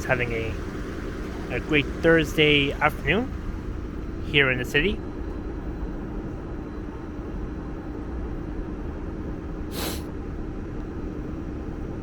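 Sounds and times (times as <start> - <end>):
vehicles idling: 0.0 - 6.6
air brake hiss: 9.7 - 10.1.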